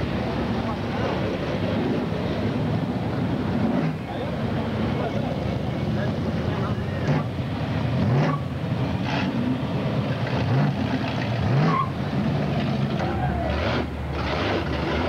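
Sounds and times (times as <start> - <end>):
crowd voices: 0.0 - 8.1, 12.2 - 14.4
car engines revving: 0.0 - 15.0.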